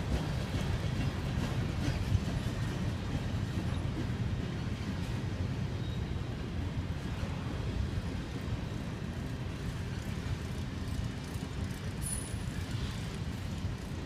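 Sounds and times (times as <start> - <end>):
steel wheels rumbling on rails: 0.0 - 14.0.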